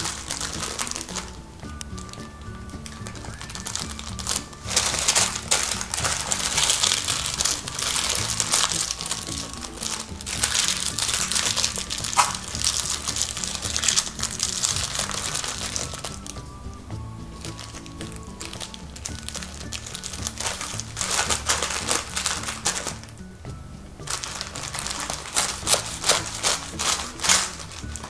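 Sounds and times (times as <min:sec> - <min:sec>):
baking paper crinkling: 0:00.0 - 0:16.5, 0:17.4 - 0:23.2, 0:24.0 - 0:28.0
soft background music: 0:00.0 - 0:28.0.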